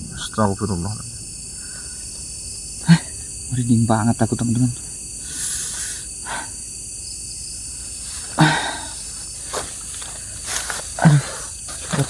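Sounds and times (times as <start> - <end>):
crickets and night insects: 0.0 - 12.0
short breathy burst: 5.2 - 6.6.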